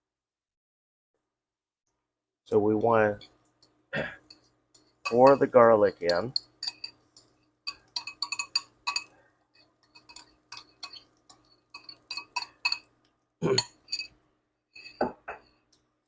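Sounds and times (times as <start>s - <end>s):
utensil clinking on dish: 2.8s - 14.2s, 14.8s - 15.6s.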